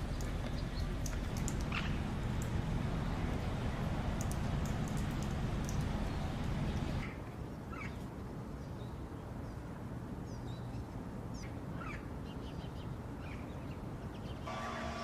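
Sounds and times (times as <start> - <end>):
low background rumble: 0.0 - 7.1.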